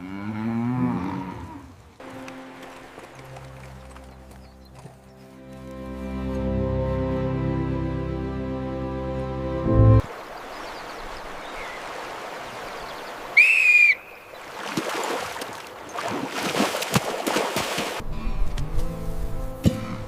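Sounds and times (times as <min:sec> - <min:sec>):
background music: 0:02.0 - 0:10.1, 0:18.0 - 0:20.0
short whistle: 0:13.4 - 0:14.1.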